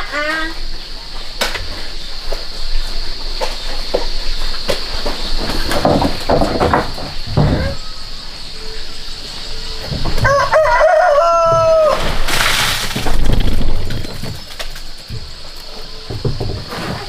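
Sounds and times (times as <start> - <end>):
rooster crowing: 10.2 - 12.2.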